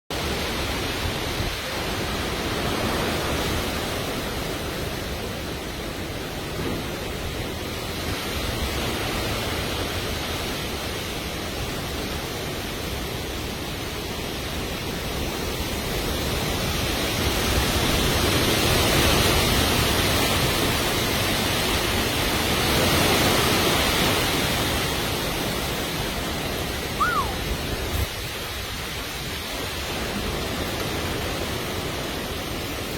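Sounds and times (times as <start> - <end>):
gusting wind: 0.1 - 32.9
heavy rain: 0.1 - 32.9
brief high chirp: 27.0 - 27.4.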